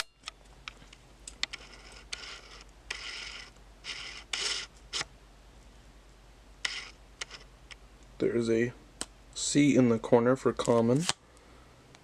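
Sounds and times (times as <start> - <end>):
cards scraping together: 1.3 - 5.1, 6.6 - 7.5, 10.7 - 11.2.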